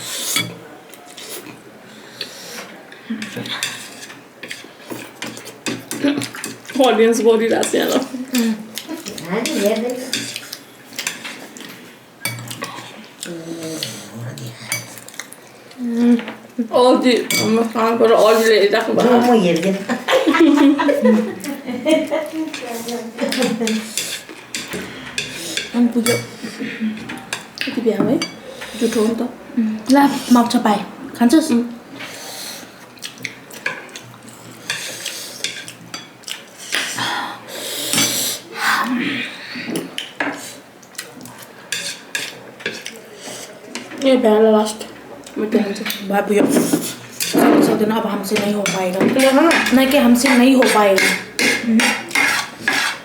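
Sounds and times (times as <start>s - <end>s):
cutlery and dishes clinking: 0.3s - 0.6s, 3.2s - 6.9s, 7.6s - 12.9s, 14.4s - 15.3s, 17.2s - 18.4s, 22.5s - 29.0s, 41.7s - 43.0s, 45.8s - 53.0s
tableware clinking: 17.3s - 17.6s.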